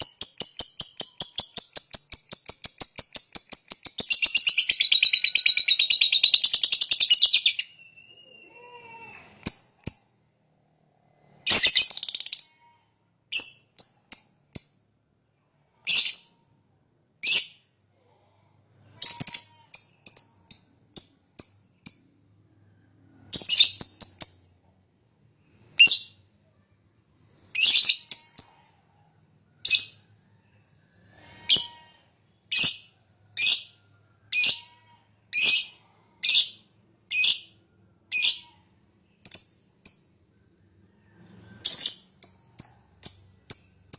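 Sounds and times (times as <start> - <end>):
bird chirps: 0.0 - 10.2, 41.2 - 43.9.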